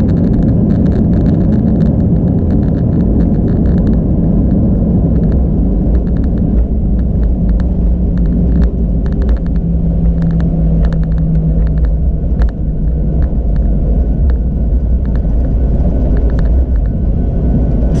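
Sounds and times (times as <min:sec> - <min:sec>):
light clicks and ticks: 0:00.0 - 0:17.0
low rumble of engines and wheels: 0:00.0 - 0:18.0.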